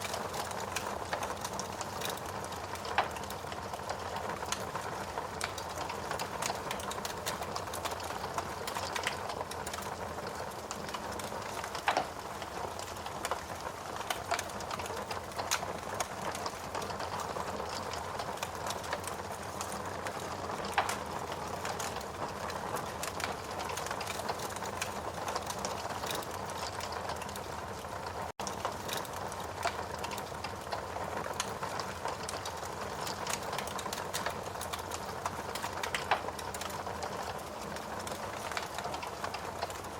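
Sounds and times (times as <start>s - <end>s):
loud pops from fire: 0.0s - 4.6s, 5.4s - 13.4s, 31.4s - 37.4s
wood fire crackling: 0.0s - 39.9s.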